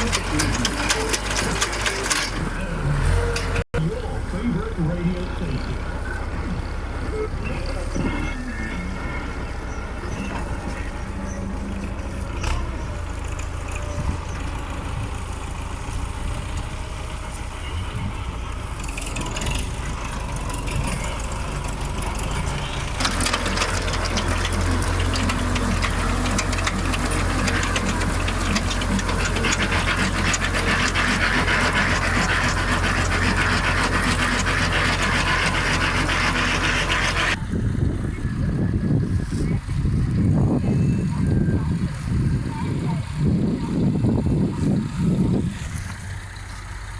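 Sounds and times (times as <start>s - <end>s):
machinery clattering rattle: 0.0s - 3.6s, 18.4s - 37.4s
tractor engine running: 0.0s - 46.9s.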